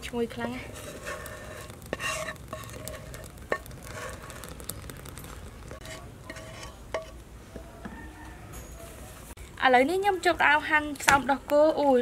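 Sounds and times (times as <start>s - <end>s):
thick sauce pouring into bowl: 0.7s - 6.9s.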